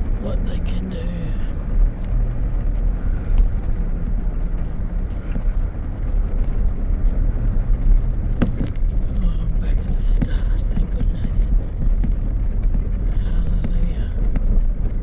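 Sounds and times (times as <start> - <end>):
vehicle driving on dirt track: 0.0 - 15.0.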